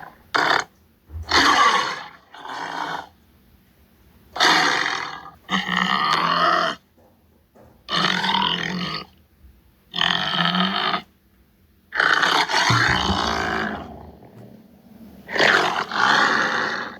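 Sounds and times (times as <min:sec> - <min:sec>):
tiger roaring grunts: 0:12.0 - 0:16.9.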